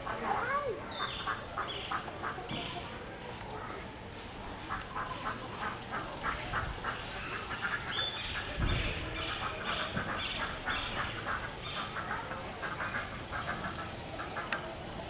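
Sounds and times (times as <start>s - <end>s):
birds calling: 0.0s - 15.0s.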